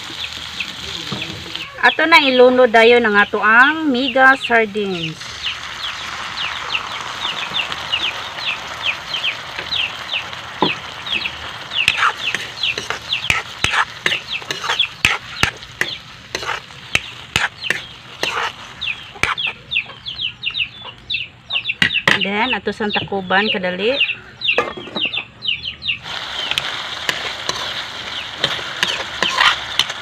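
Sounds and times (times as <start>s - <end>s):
fish frying in hot oil: 0.0s - 20.3s, 26.0s - 30.0s
spatula scraping a wok: 11.8s - 19.6s, 26.0s - 30.0s.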